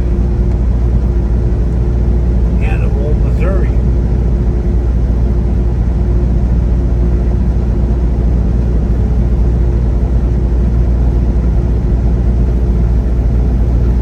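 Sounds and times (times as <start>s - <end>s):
road noise: 0.0s - 4.5s
faint steady hum: 0.0s - 5.4s
truck engine drone: 0.0s - 14.0s.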